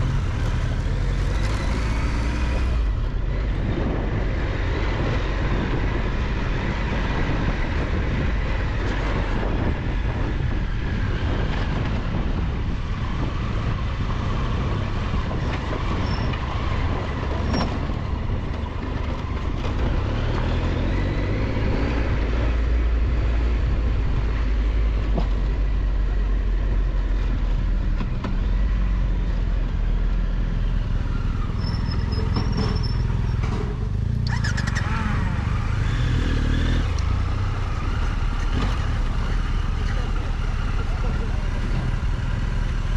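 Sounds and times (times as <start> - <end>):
motorcycle engine rumbling: 30.9 - 42.9.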